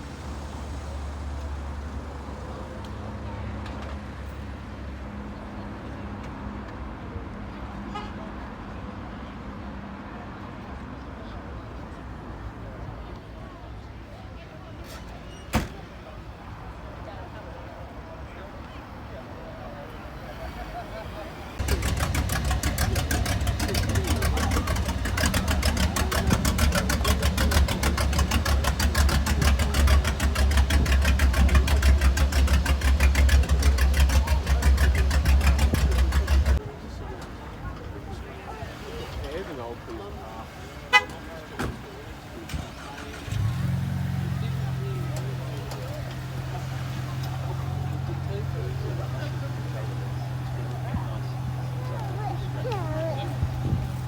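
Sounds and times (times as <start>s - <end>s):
car engines idling: 0.0s - 4.7s, 11.2s - 54.0s
car horn toot: 40.9s - 41.3s.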